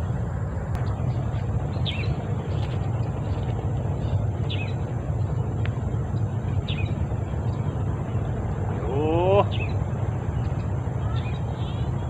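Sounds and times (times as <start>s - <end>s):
bird chirped call: 8.9s - 9.8s, 11.0s - 12.0s.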